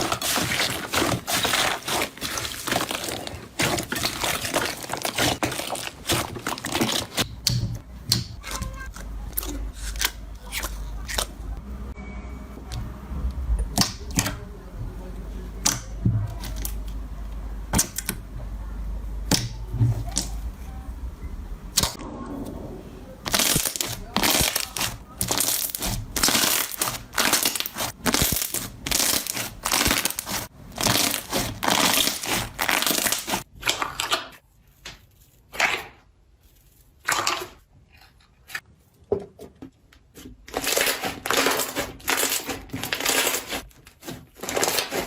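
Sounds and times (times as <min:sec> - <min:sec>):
steady low hum: 0:09.0 - 0:26.3
slime crackling and popping: 0:23.3 - 0:34.4, 0:40.5 - 0:43.6.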